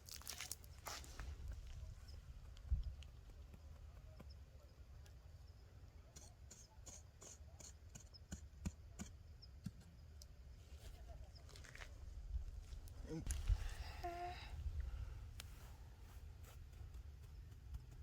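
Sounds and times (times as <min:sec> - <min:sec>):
hands tapping and scraping soil: 0:00.0 - 0:05.2, 0:15.3 - 0:18.0.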